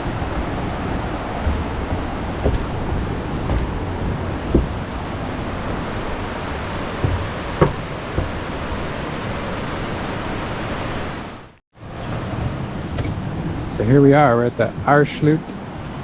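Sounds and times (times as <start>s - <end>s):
short thumps: 0.0s - 8.9s
river rushing through gorge: 0.0s - 11.4s.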